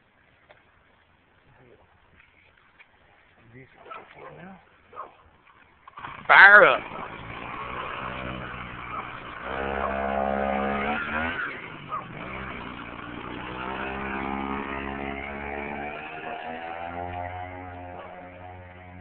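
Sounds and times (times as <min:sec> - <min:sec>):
small engine revving: 0:05.5 - 0:19.0.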